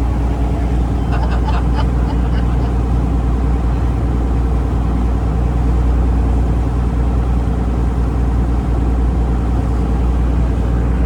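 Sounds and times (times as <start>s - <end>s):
boat engine drone: 0.0s - 11.0s.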